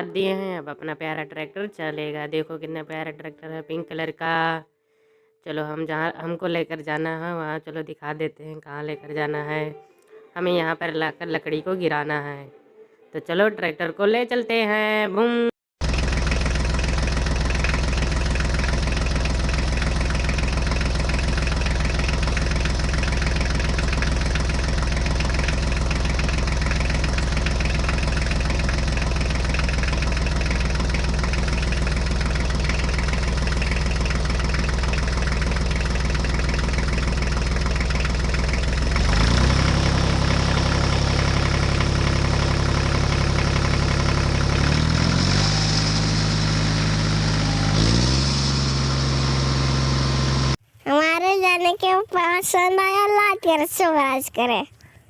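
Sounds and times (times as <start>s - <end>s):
tractor engine running: 15.8s - 54.8s.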